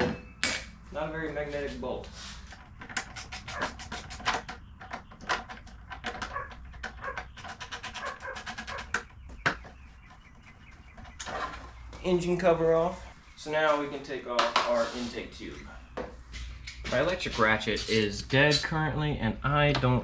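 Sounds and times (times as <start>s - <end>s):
hand tools clicking and knocking: 2.5s - 9.1s, 16.5s - 18.8s.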